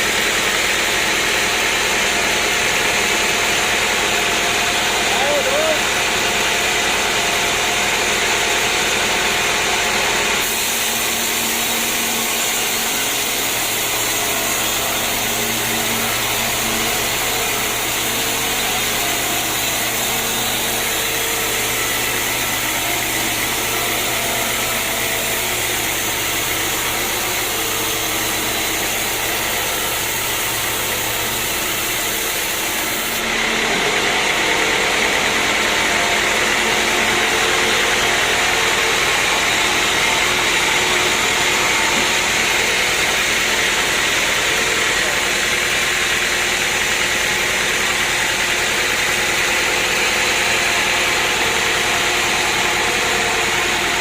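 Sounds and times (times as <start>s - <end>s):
sawmill machinery running: 0.0s - 54.0s.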